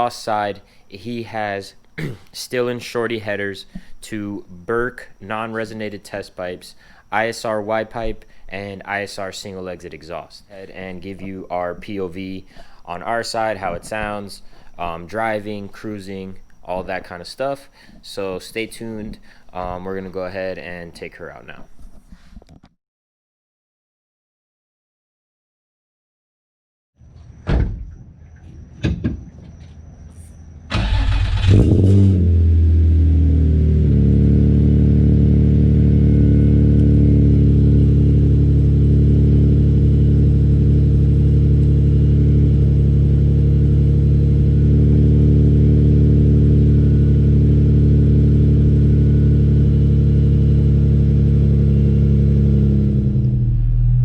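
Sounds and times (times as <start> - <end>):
car engine starting and idling: 30.6 - 54.0.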